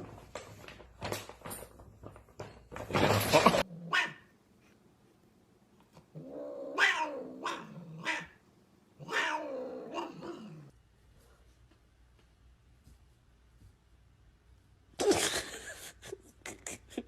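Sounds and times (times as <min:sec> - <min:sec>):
cat yowling: 0:06.6 - 0:08.4, 0:09.0 - 0:10.7.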